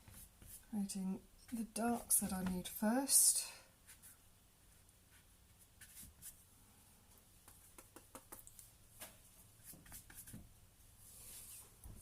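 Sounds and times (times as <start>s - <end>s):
paintbrush on canvas: 1.4s - 2.6s, 3.8s - 6.4s, 7.4s - 8.7s, 9.6s - 10.4s.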